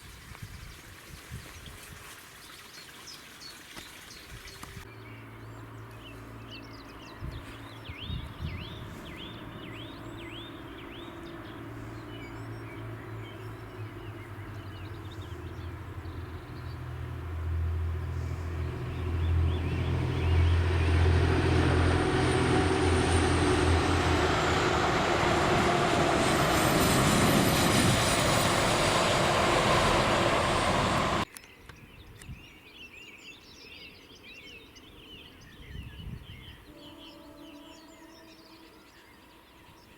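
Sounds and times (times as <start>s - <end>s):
birds chirping: 2.4s - 39.9s
train passing: 4.9s - 31.3s.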